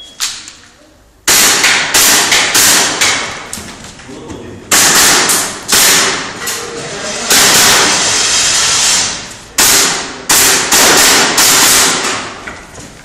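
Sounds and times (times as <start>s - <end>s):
airsoft gun shots: 1.3s - 3.5s, 4.7s - 6.4s, 7.3s - 8.0s, 9.6s - 12.4s.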